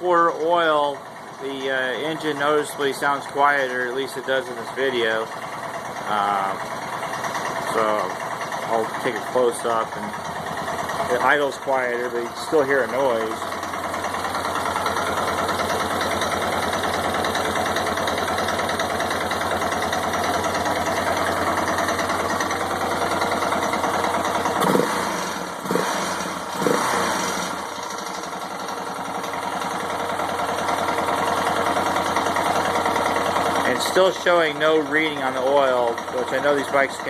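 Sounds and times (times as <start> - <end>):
motorcycle engine idling: 0.0 - 37.0.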